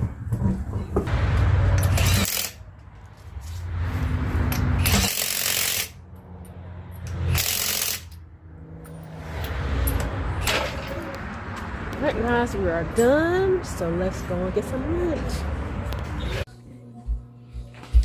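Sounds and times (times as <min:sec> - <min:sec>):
pneumatic impact wrench rattling: 0:01.8 - 0:02.6, 0:04.5 - 0:06.0, 0:07.1 - 0:08.2.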